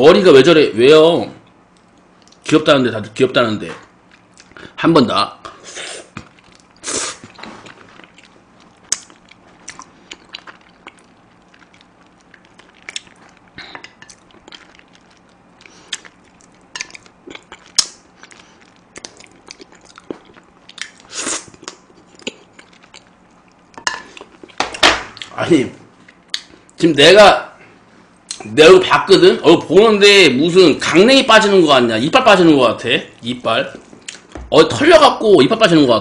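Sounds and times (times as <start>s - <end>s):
close chewing and sucking: 5.7s - 24.6s.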